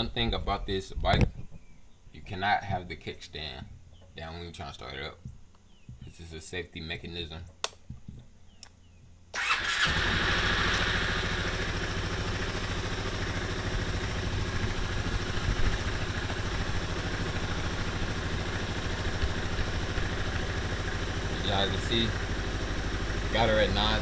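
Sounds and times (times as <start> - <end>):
scooter engine idling: 9.4 - 24.0.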